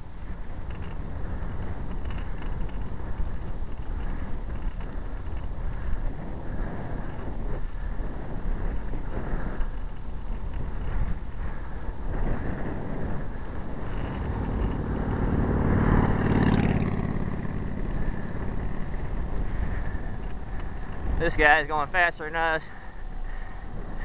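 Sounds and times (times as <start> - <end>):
wind rushing over microphone: 0.0 - 24.0
vehicle passing close by: 12.6 - 21.2.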